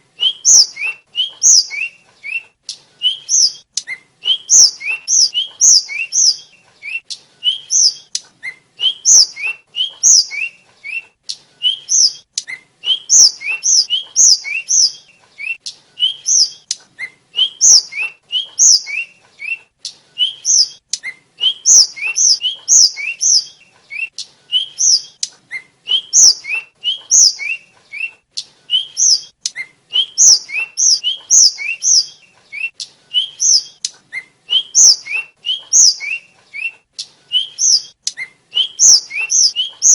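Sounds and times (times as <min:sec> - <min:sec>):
flycatcher singing whistled notes: 0:00.2 - 0:02.4, 0:03.0 - 0:11.0, 0:17.4 - 0:19.6, 0:20.2 - 0:28.1, 0:28.7 - 0:39.9.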